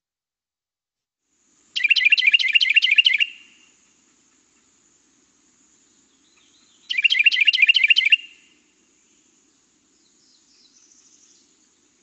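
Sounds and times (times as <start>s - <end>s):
wren singing: 1.8s - 3.7s, 5.6s - 12.0s.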